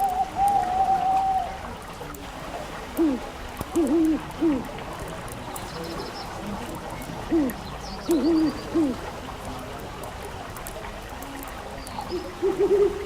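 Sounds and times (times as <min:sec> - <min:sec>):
bird hooting: 0:00.0 - 0:01.6, 0:03.0 - 0:04.7, 0:07.3 - 0:09.0
fireplace fire crackling: 0:00.0 - 0:12.1.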